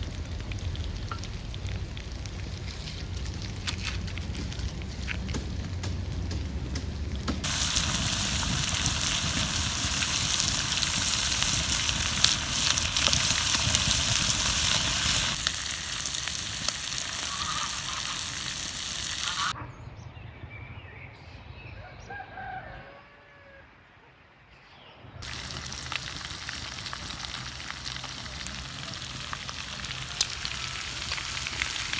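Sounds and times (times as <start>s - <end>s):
food sizzling in fat: 7.4s - 19.6s, 25.2s - 31.9s
chicken gliding calls: 7.6s - 19.6s.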